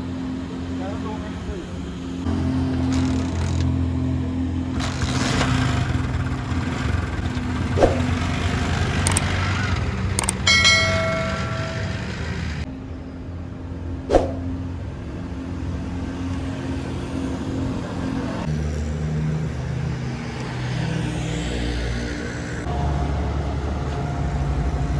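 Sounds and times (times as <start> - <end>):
traffic engine hum: 0.0 - 24.9
ringing metallic tone: 10.2 - 12.7.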